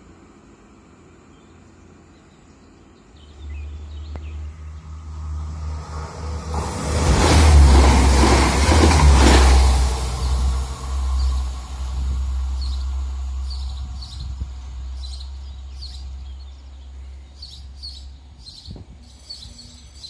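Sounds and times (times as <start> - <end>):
train passing: 3.3 - 18.4.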